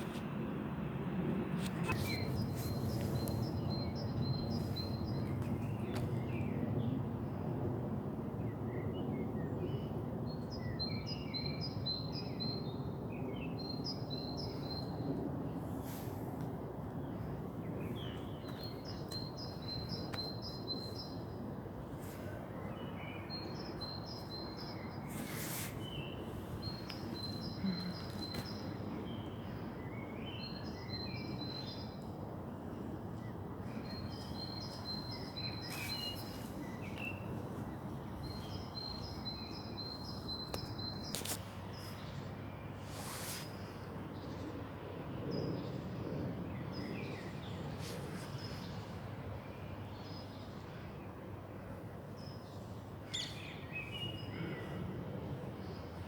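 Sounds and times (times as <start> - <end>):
low outdoor background hum: 0.0 - 56.0
songbird singing: 22.6 - 32.2, 33.2 - 42.2, 53.1 - 54.8.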